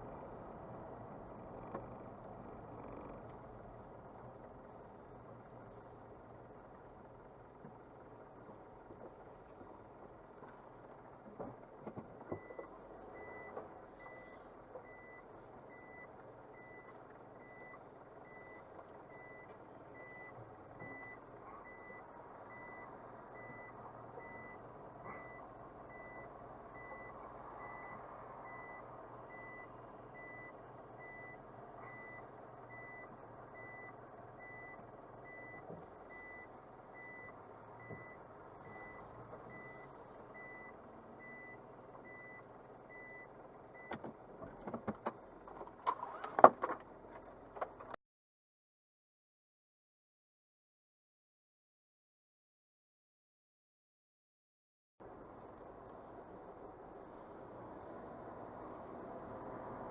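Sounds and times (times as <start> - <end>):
car running on road: 0.0 - 48.0, 55.0 - 59.9.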